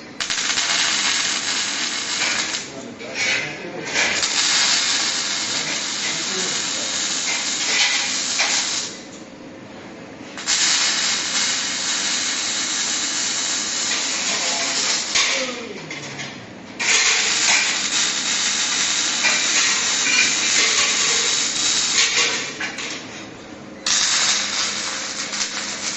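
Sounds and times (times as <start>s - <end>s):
welding arc hissing: 0.0s - 3.3s, 4.0s - 9.1s, 10.4s - 15.5s, 16.8s - 22.6s, 23.8s - 25.9s.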